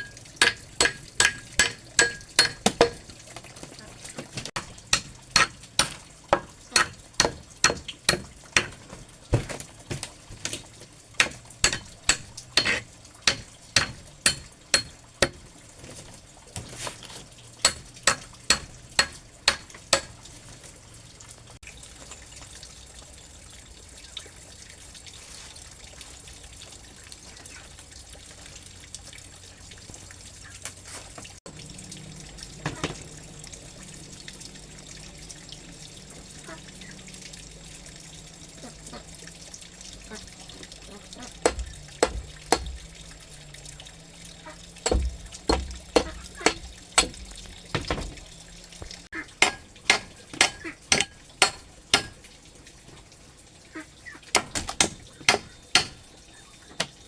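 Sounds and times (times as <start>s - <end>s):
trickle of running water: 0.0s - 57.0s
sharp knocks: 11.2s - 15.4s, 41.4s - 42.9s, 44.8s - 48.2s.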